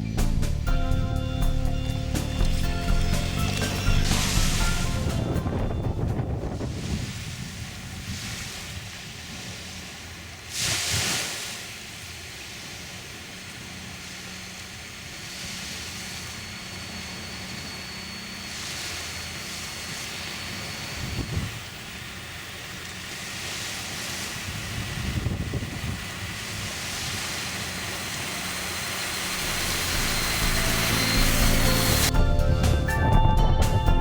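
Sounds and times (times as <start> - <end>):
toy truck electric motor whine: 0.7 - 6.9, 13.1 - 32.2
surf at beach: 2.2 - 34.0
wind on microphone: 3.8 - 9.7, 20.6 - 21.8, 24.1 - 28.2.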